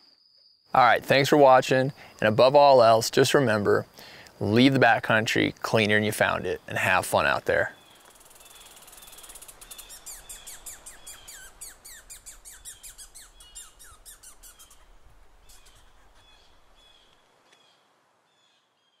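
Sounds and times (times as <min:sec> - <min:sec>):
bird chirping rapidly: 0:07.6 - 0:17.1.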